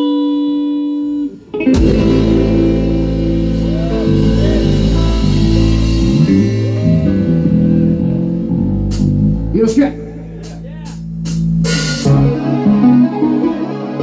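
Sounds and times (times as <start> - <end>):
rock band playing: 1.0 - 14.0
held guitar note: 1.6 - 9.6.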